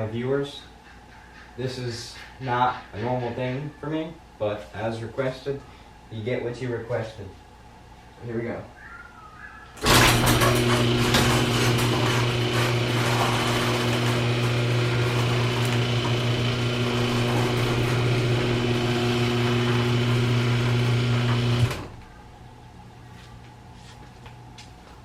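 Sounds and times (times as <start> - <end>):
garage door opener motor humming: 9.8 - 22.3.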